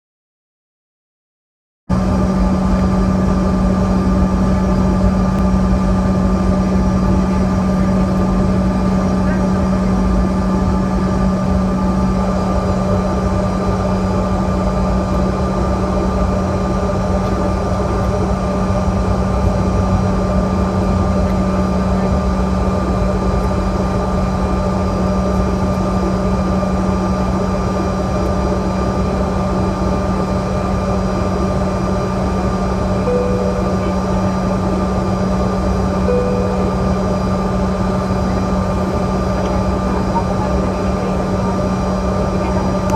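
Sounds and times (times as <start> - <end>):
jet engines humming in cabin: 1.9 - 42.9
short faint tones: 33.1 - 34.3, 36.1 - 37.4.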